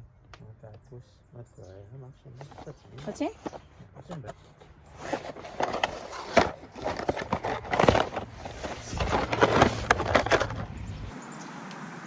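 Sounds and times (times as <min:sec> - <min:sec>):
objects clattering and rustling: 0:02.4 - 0:11.1.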